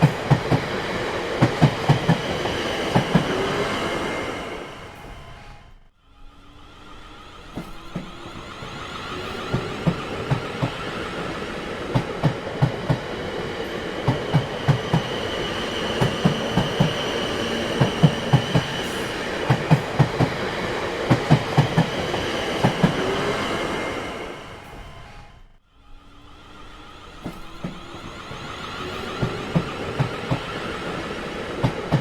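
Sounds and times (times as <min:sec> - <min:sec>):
train wheels clacking over rail joints: 0:00.0 - 0:03.7, 0:07.5 - 0:23.2, 0:27.2 - 0:32.0.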